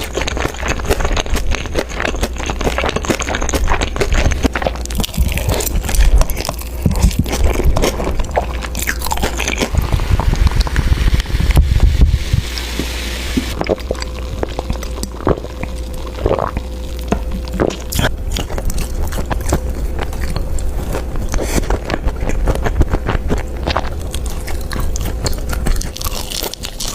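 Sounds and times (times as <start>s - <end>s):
crunchy bites and chewing: 0.0s - 11.6s, 12.5s - 26.9s
low thumping: 9.0s - 20.2s.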